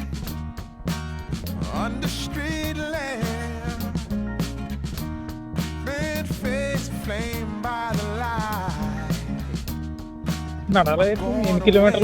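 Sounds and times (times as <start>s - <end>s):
guitar and bass song: 0.0s - 12.0s
person singing: 1.5s - 4.2s, 5.8s - 9.6s, 11.2s - 12.0s.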